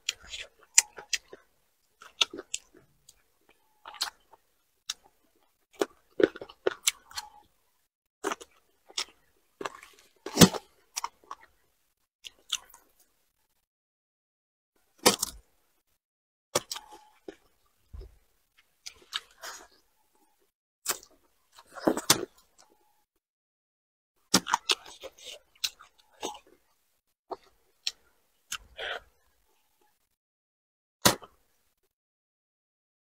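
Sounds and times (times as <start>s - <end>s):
person chewing food: 0.0s - 7.6s, 8.2s - 11.6s, 12.2s - 13.1s, 16.6s - 22.8s, 24.3s - 30.0s.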